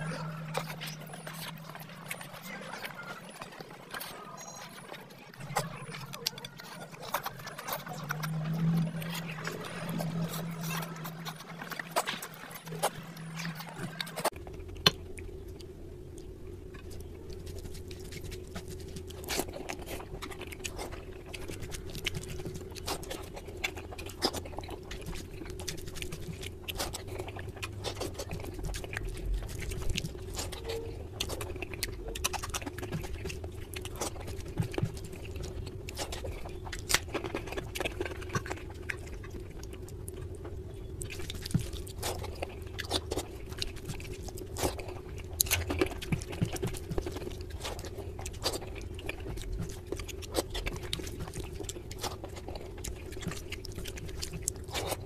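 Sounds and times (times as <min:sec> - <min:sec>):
person chewing food: 0:00.0 - 0:55.0
steady low hum: 0:00.0 - 0:55.0.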